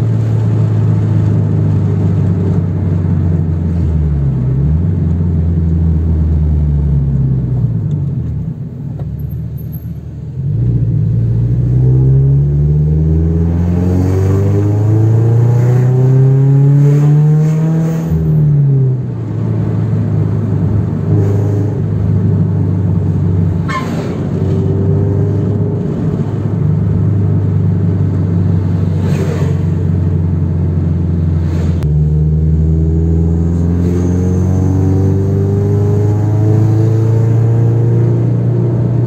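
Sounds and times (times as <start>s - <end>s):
tyre and road noise: 0.0s - 39.0s
car engine revving: 10.4s - 39.0s.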